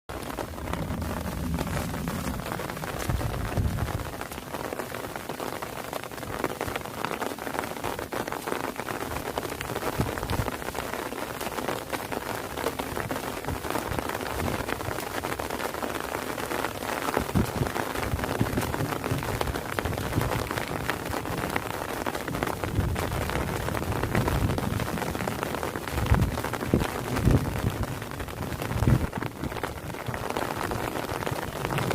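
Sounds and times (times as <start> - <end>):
steady rain falling: 0.0 - 31.9
low rumble: 0.1 - 5.2, 31.2 - 31.9.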